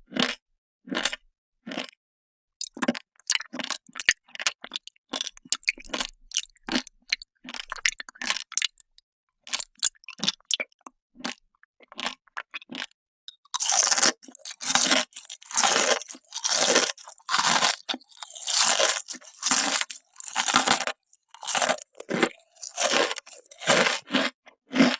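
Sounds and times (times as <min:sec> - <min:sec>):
crunching and chewing candy: 0:00.0 - 0:02.0, 0:02.6 - 0:24.9.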